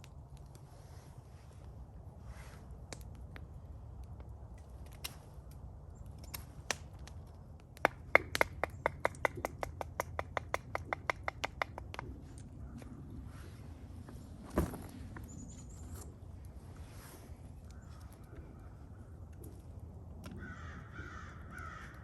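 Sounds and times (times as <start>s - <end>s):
thump: 14.5s - 15.0s.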